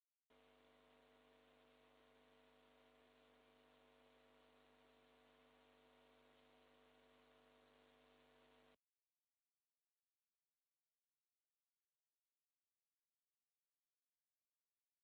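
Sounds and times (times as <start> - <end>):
electrical hum: 0.3 - 8.8
low hiss: 0.3 - 8.8.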